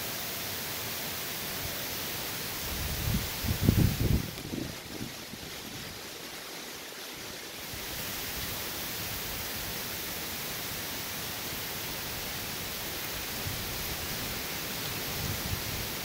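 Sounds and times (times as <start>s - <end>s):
heavy rain and wind hiss: 0.0s - 16.0s.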